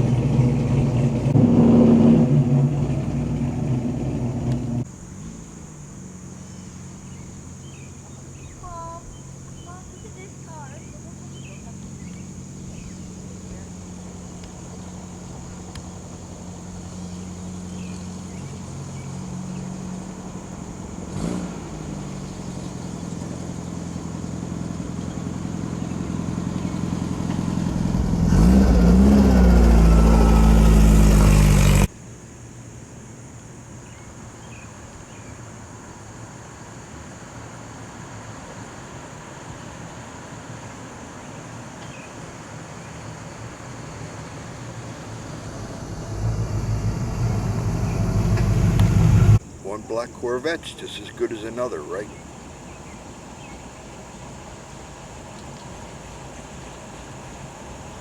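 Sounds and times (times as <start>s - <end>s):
background rumble: 0.0s - 31.9s, 43.1s - 53.4s
car engine passing: 0.0s - 31.9s, 37.3s - 52.6s.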